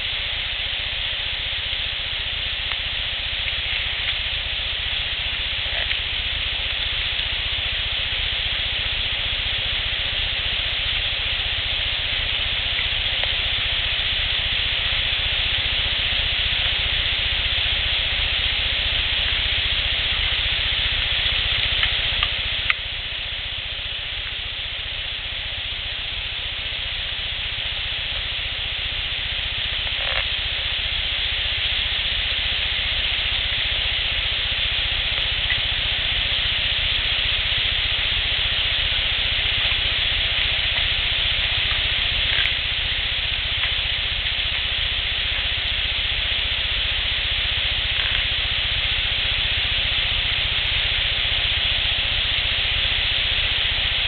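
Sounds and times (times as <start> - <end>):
steady outdoor hiss: 0.0 - 54.0
faint clicks: 2.6 - 4.3, 5.6 - 7.3, 21.0 - 22.9, 29.6 - 30.7, 34.8 - 36.5, 38.2 - 45.8, 47.7 - 48.4.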